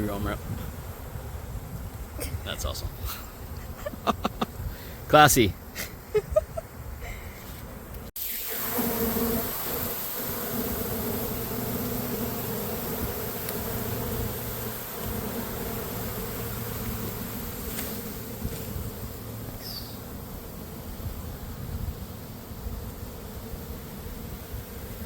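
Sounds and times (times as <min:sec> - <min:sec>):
honeybee swarm buzzing: 0:07.6 - 0:25.0.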